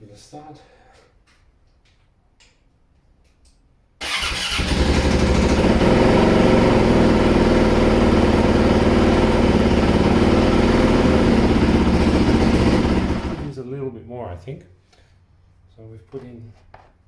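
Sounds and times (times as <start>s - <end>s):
dirt bike engine starting and idling: 4.0s - 13.6s.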